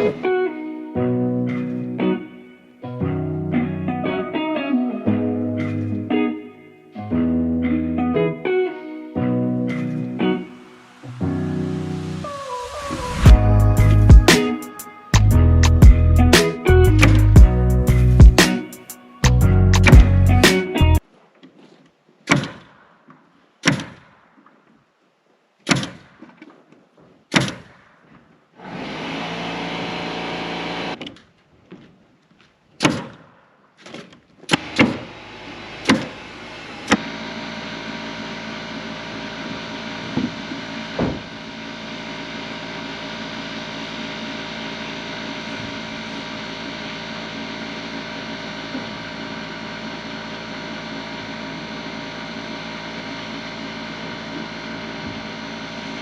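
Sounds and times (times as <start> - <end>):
nailing shots or hammer blows: 22.2 - 24.5, 25.6 - 26.5, 27.3 - 28.3, 32.8 - 35.2, 35.8 - 36.2
machine running steadily: 28.7 - 31.0, 34.6 - 56.0.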